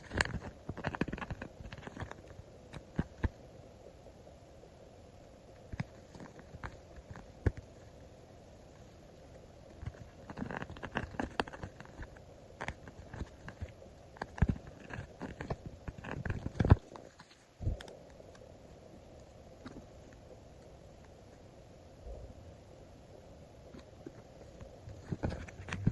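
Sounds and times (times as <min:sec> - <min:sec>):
stickers handled and peeled: 0:00.0 - 0:03.3, 0:09.7 - 0:18.0.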